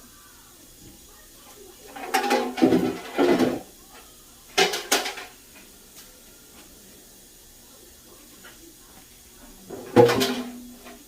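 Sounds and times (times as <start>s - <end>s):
dishes clattering and clinking: 1.8s - 5.7s, 9.4s - 11.0s.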